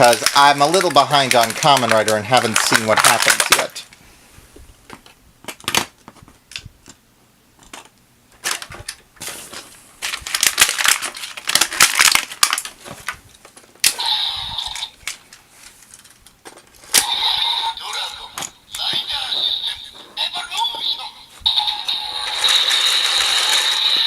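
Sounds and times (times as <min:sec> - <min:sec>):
packaging crinkling: 0:00.0 - 0:04.0, 0:07.7 - 0:13.9.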